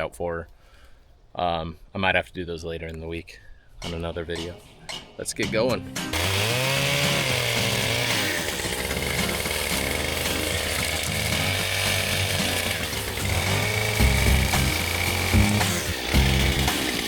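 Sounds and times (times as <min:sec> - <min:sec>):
chainsaw cutting wood: 0:06.1 - 0:17.0.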